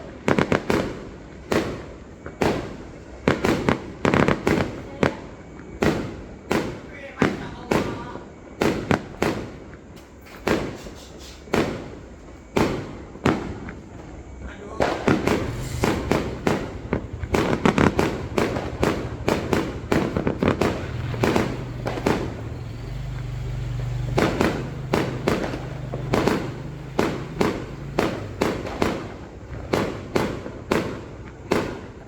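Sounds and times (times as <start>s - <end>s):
fireworks bangs with echo: 0.0s - 32.0s
low steady hum: 15.4s - 24.0s.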